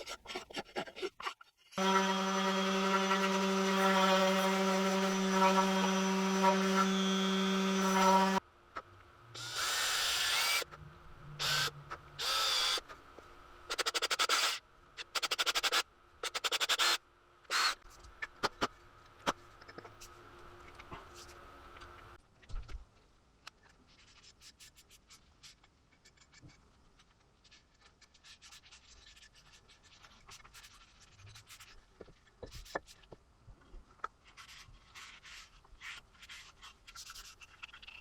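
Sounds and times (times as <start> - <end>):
power tool motor humming: 1.8 - 8.4.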